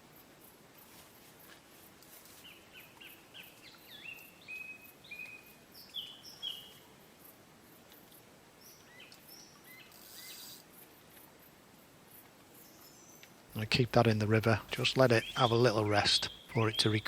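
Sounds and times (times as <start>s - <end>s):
faint outdoor hiss: 0.0s - 17.0s
songbird singing: 2.2s - 7.0s, 7.9s - 10.6s, 12.5s - 17.0s.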